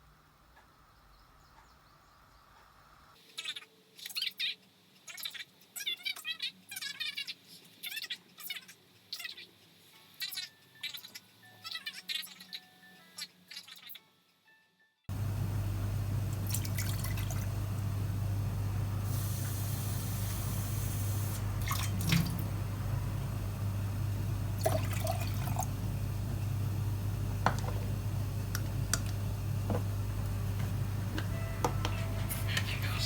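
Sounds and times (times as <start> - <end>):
water running at a sink: 15.1 - 30.9
steady low hum: 15.1 - 33.0.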